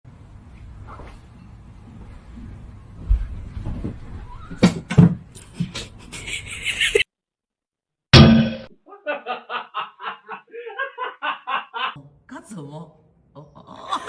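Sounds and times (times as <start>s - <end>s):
person snickering: 6.0s - 7.0s.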